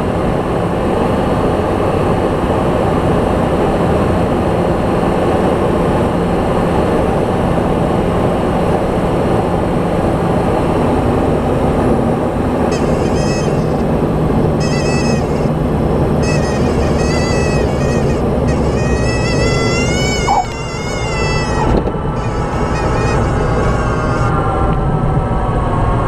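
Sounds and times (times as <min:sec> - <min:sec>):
light aircraft engine drone: 0:00.0 - 0:26.0
faint high-pitched tones: 0:16.2 - 0:23.7.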